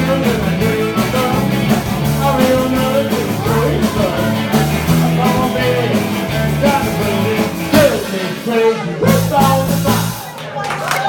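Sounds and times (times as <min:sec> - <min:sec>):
electric guitar: 0:00.0 - 0:08.4
bass guitar: 0:00.0 - 0:10.3
person singing: 0:00.0 - 0:10.3
rock and roll band playing: 0:00.0 - 0:10.7.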